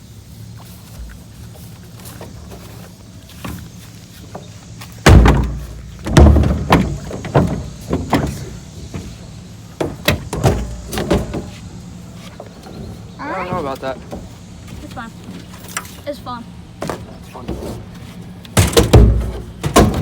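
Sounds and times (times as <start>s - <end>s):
light irregular knocks: 1.0s - 16.0s
heavy thumps: 3.4s - 11.8s, 18.6s - 20.0s.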